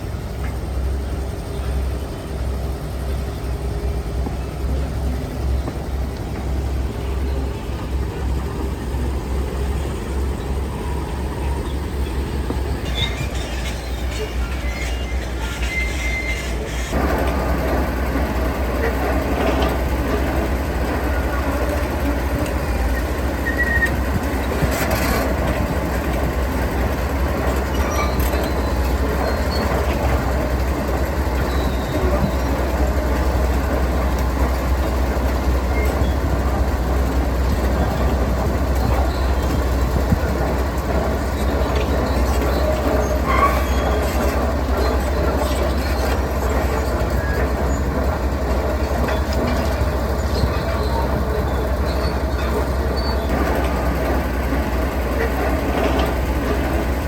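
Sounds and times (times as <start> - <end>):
diesel machinery rumbling: 0.0 - 57.0
metallic squealing: 10.4 - 17.0, 22.7 - 25.3, 27.5 - 30.4, 41.2 - 47.9.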